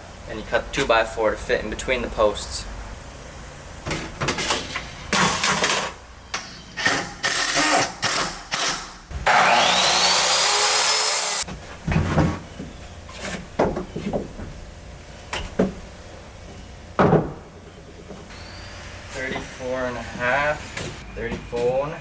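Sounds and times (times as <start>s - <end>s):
power tool motor whining: 6.8s - 11.4s
lumber knocking and clattering: 17.0s - 18.3s.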